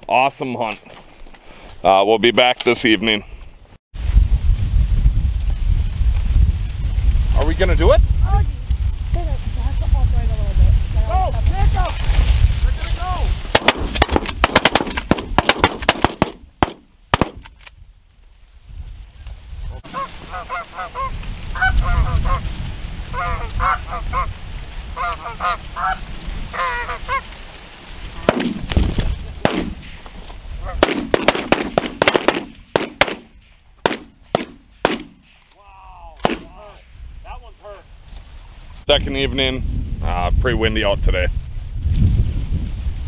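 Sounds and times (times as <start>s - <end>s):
shotgun shots: 13.5s - 17.6s, 28.2s - 30.0s, 30.8s - 35.4s, 36.2s - 36.7s
geese honking: 19.8s - 22.5s, 23.1s - 27.4s.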